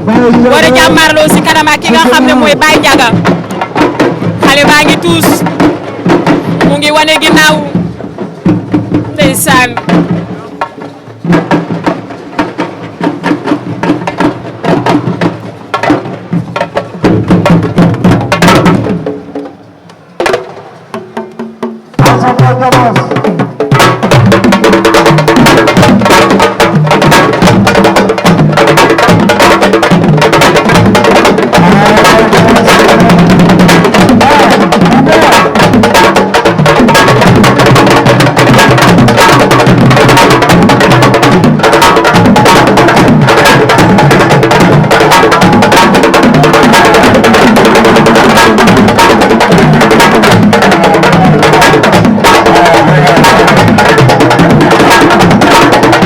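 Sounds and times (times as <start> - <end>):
percussion-heavy music: 0.0 - 56.0.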